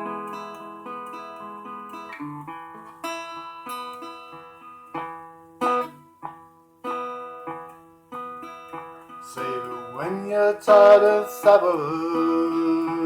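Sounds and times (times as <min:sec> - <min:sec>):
acoustic guitar strumming chords: 0:00.0 - 0:13.0
person singing: 0:09.2 - 0:13.0.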